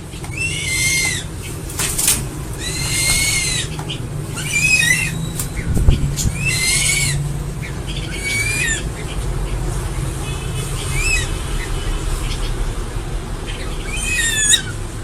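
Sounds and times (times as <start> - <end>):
low steady rumble: 0.0 - 15.0
eagle screaming: 0.3 - 1.3, 2.6 - 3.8, 4.4 - 5.3, 13.9 - 14.8.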